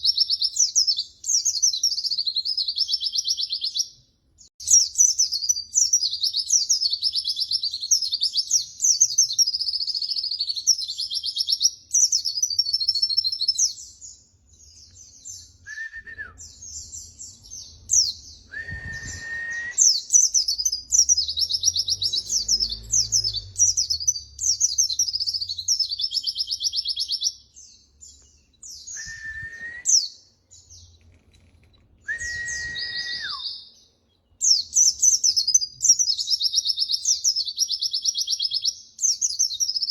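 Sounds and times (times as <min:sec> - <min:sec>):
lower whistled bird note: 0:15.3 - 0:16.6, 0:18.4 - 0:20.6, 0:28.6 - 0:30.1, 0:32.0 - 0:33.7.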